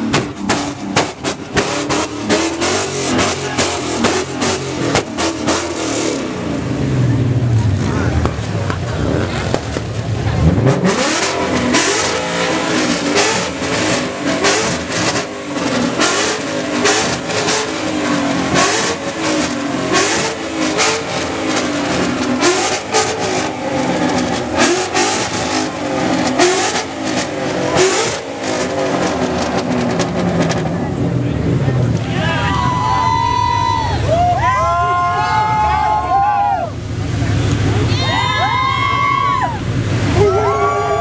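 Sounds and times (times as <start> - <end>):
exhaust pops and bangs: 0.0 - 5.8, 8.1 - 10.9
car engine revving: 0.0 - 32.4.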